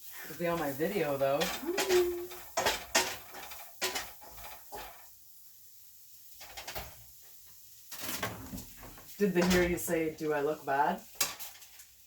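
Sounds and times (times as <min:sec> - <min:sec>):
kitchen items knocking and clattering: 0:00.4 - 0:05.0, 0:06.4 - 0:07.1, 0:07.9 - 0:10.2.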